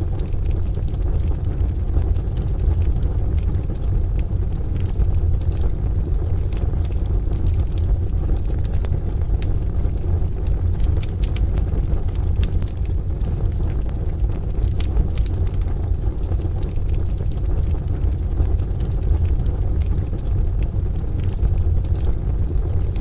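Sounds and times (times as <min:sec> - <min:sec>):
deep rumble: 0:00.0 - 0:23.0
wood fire crackling and popping: 0:00.0 - 0:23.0.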